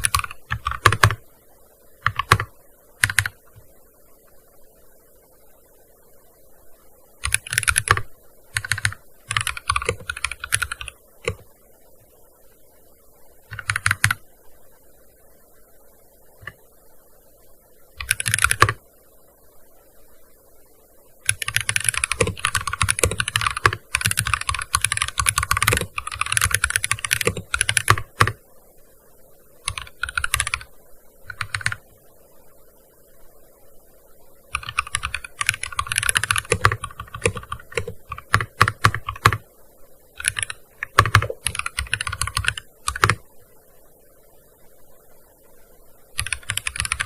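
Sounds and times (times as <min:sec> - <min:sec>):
fast typing on keyboard: 0:00.0 - 0:01.2, 0:02.0 - 0:03.4, 0:07.2 - 0:11.4, 0:13.5 - 0:14.2, 0:18.0 - 0:18.8, 0:21.3 - 0:28.4, 0:29.7 - 0:30.7, 0:31.3 - 0:31.8, 0:34.5 - 0:39.4, 0:40.2 - 0:43.2, 0:46.2 - 0:47.0.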